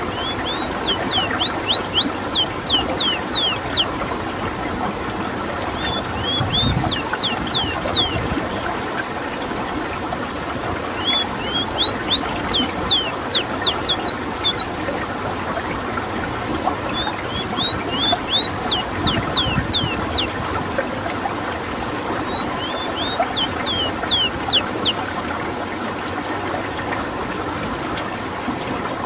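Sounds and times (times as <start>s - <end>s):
bird singing whistled notes: 0.0s - 3.9s, 5.8s - 8.2s, 11.0s - 14.9s, 16.9s - 20.4s, 22.2s - 25.0s.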